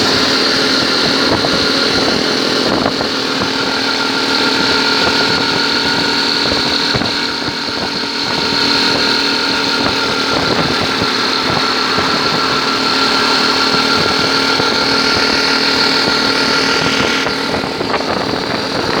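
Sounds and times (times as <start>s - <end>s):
constant rushing noise: 0.0s - 19.0s
motorcycle engine running: 0.0s - 19.0s.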